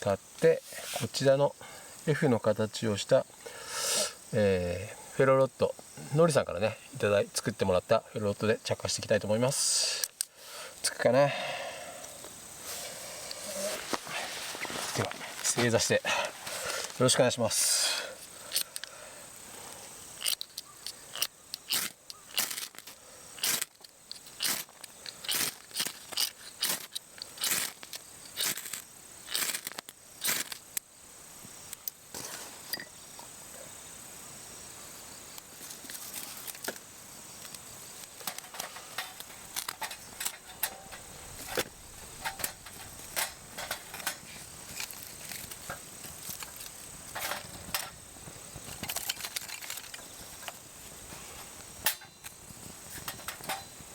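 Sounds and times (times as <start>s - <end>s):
sparks crackling: 12.2s - 32.3s, 35.3s - 53.9s
ferro rod scraping with striker: 20.2s - 30.6s.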